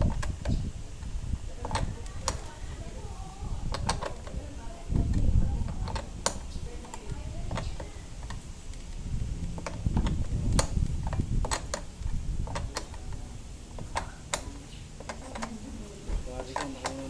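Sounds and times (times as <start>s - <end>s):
low rumble: 0.0s - 14.0s
clicks and taps of hand tools: 5.0s - 15.6s.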